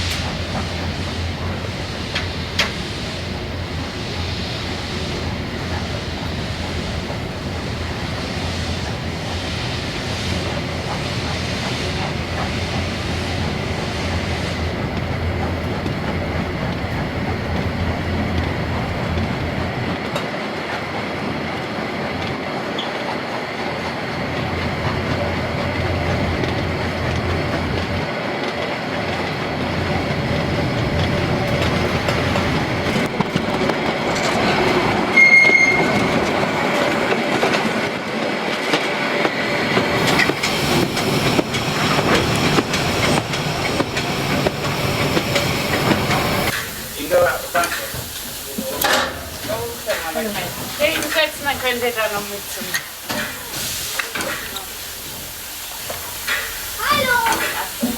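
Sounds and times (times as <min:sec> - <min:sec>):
train wheels clattering on rails: 0:00.0 - 0:57.9
high wheel squeal: 0:35.1 - 0:36.1.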